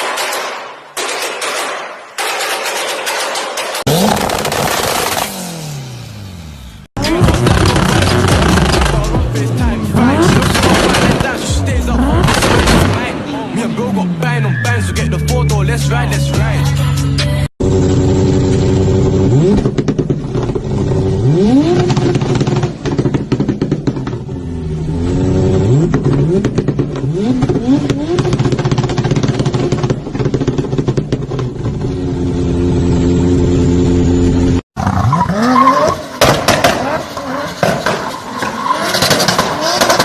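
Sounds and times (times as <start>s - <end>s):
exhaust crackles and pops: 3.8s - 5.5s, 7.0s - 9.2s, 12.1s - 13.1s, 18.2s - 24.4s, 25.7s - 32.3s, 34.8s - 40.0s
car engine revving: 3.8s - 16.6s, 17.2s - 40.0s.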